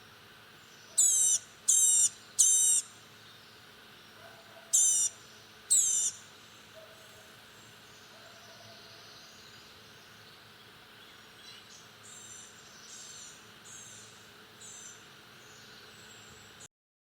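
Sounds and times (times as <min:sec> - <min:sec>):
bird thin high calls: 0:00.9 - 0:02.9, 0:04.7 - 0:06.2.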